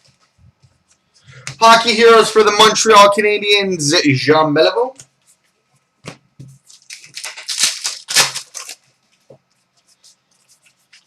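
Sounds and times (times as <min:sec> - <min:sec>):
card packaging rustling: 0:06.4 - 0:11.0.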